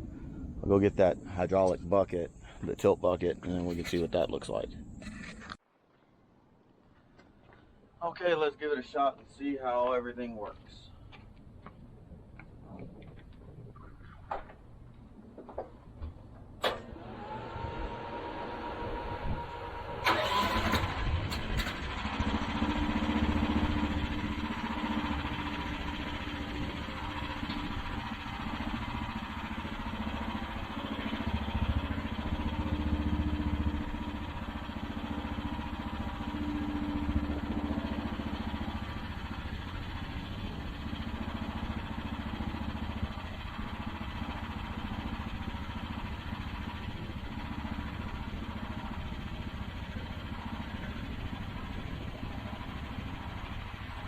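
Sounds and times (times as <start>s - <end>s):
excavator engine running: 14.1s - 54.0s.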